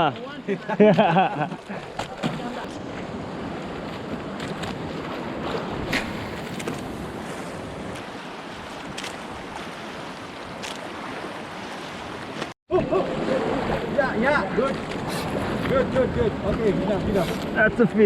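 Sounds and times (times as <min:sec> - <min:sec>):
ocean surf: 0:00.0 - 0:18.0
wind buffeting the microphone: 0:13.1 - 0:18.0.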